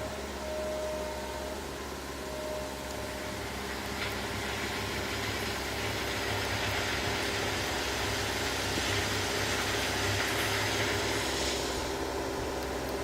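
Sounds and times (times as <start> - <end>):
diesel engine running: 0.0 - 13.0
broad hiss: 10.4 - 12.0.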